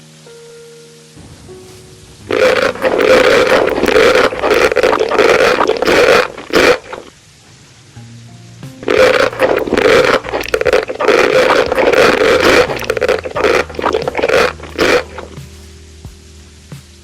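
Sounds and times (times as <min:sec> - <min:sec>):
wet eating sounds: 0:02.2 - 0:07.2, 0:08.8 - 0:15.7.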